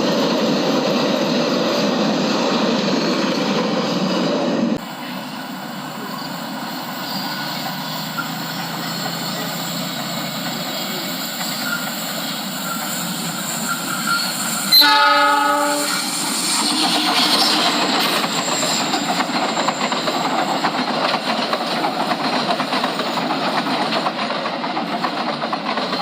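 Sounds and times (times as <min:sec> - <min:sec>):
train rushing on rails: 0:00.0 - 0:26.0
locomotive horn blast: 0:14.7 - 0:16.1.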